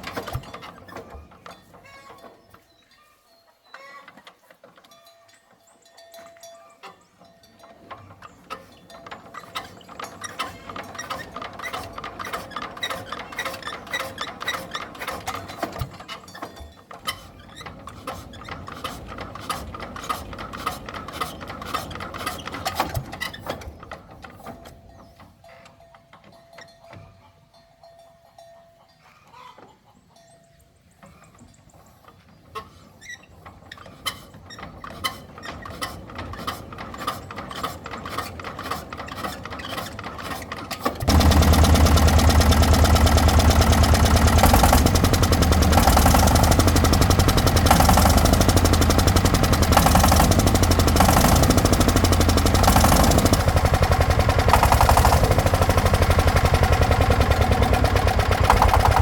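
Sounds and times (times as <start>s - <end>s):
engine cranking and starting: 0.0s - 1.8s, 8.2s - 25.0s, 33.3s - 59.0s.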